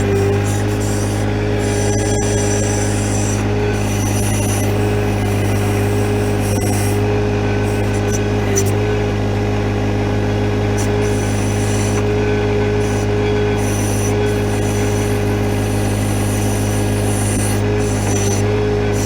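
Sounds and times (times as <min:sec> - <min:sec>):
tractor diesel engine running: 0:00.0 - 0:19.0
hiss: 0:13.6 - 0:18.4.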